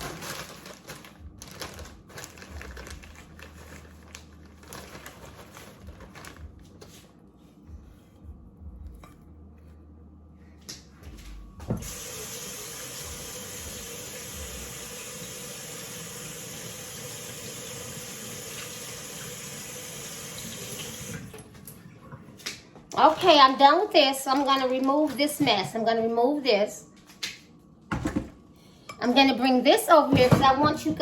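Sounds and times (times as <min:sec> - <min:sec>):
water running into sink: 0:11.8 - 0:21.5.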